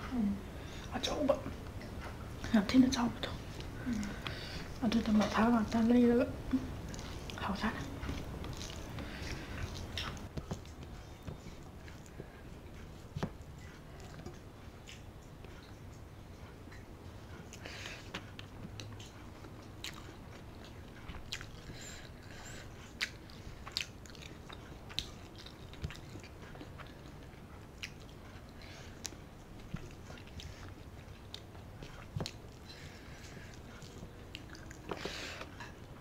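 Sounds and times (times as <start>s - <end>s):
chewing with wet mouth clicks: 3.2s - 36.0s.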